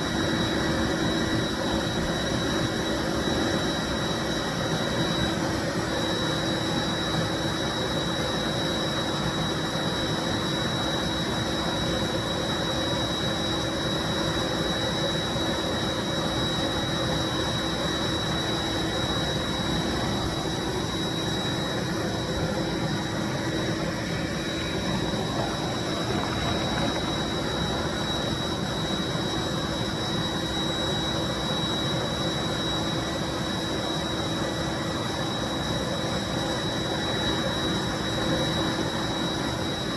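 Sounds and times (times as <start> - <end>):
cleaning machine motor whine: 8.6 - 39.9.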